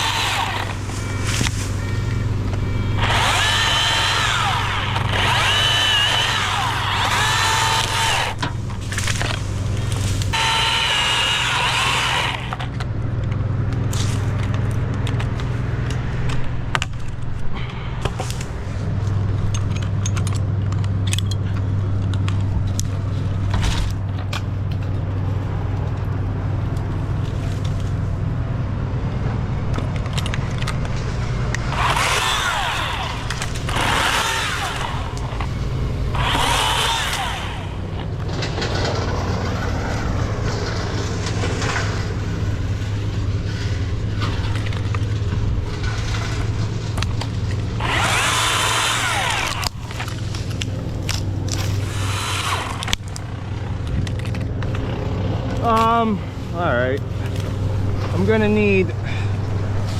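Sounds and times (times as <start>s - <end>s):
engine idling: 0.0s - 16.0s, 29.4s - 59.9s.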